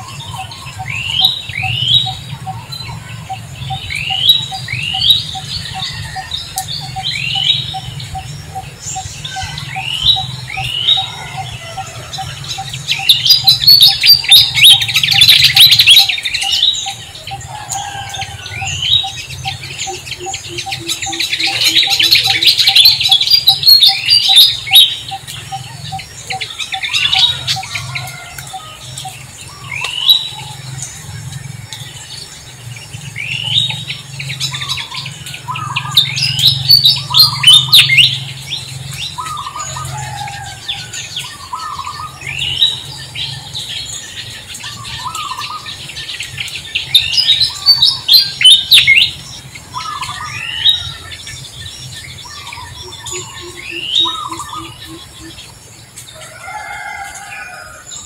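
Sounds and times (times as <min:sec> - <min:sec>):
birds chattering: 0:00.0 - 0:58.0
birds chirping: 0:00.0 - 0:58.0.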